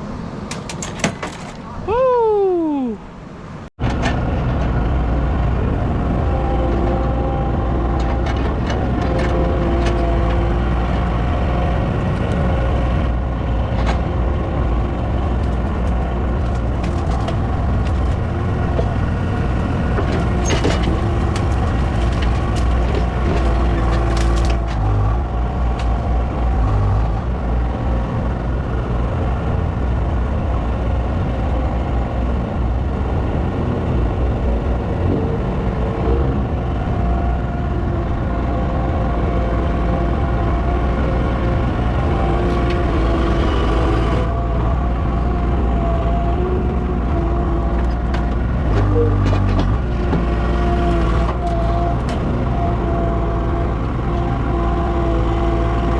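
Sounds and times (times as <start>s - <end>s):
large engine rumbling: 0.0s - 55.9s.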